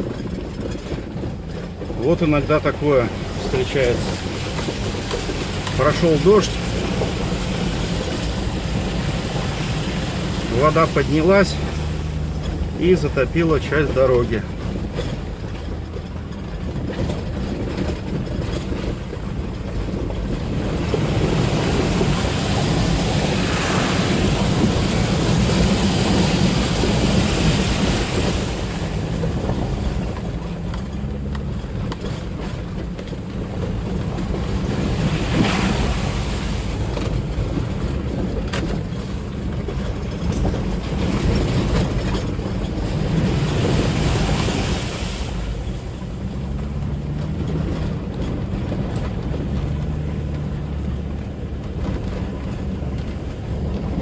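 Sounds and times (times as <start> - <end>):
car engine and road rumble: 0.0 - 54.0
water splashing against wheels: 0.0 - 54.0.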